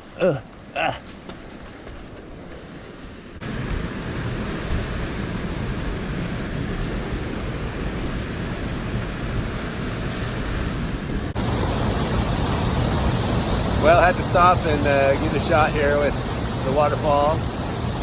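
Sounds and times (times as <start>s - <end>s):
waterfall rushing: 11.3s - 18.0s.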